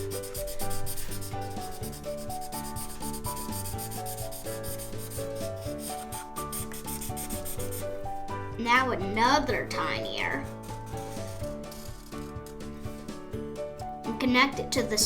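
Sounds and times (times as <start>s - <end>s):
scribbling on paper: 0.0s - 8.0s, 10.3s - 13.2s
soft simple melody: 0.0s - 15.0s.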